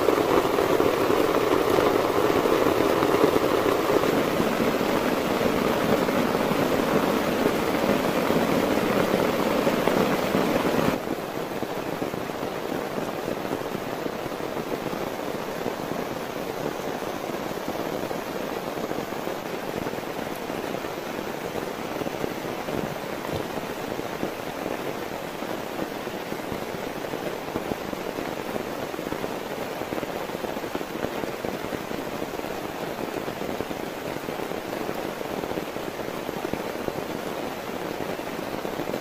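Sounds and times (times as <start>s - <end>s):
heavy rain: 0.0s - 39.0s.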